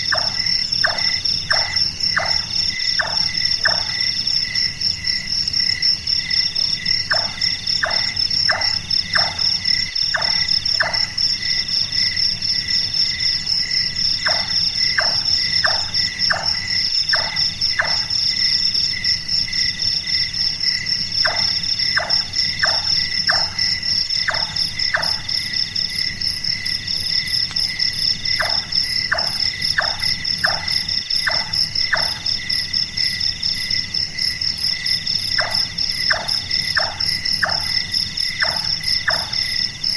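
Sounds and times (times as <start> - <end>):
crickets and insects chirring: 0.0 - 39.9
nightjar knocking calls: 0.1 - 3.9, 7.1 - 9.4, 10.1 - 11.2, 14.3 - 18.1, 35.3 - 37.8.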